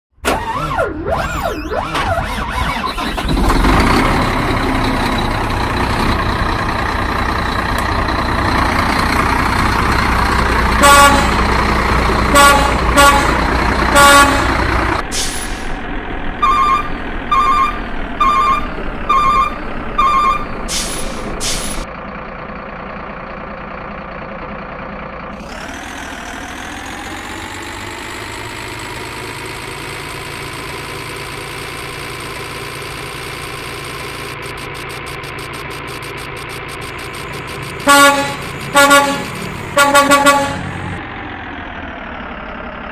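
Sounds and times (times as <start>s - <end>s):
truck engine running: 0.2s - 42.9s
evenly spaced beeps: 0.6s - 3.0s, 16.4s - 20.6s, 34.3s - 37.8s
truck horn honks: 10.7s - 11.6s, 12.2s - 15.0s, 16.4s - 20.5s, 37.8s - 41.0s.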